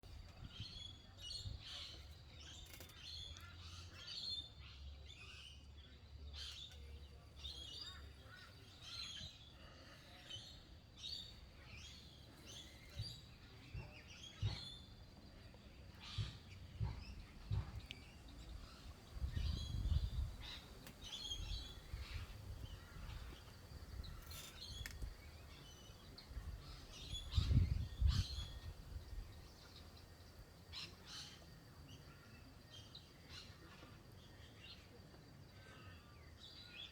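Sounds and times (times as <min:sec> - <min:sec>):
birds chirping: 0:00.0 - 0:36.9
wind rumbling on microphone: 0:16.1 - 0:25.4, 0:26.1 - 0:30.2.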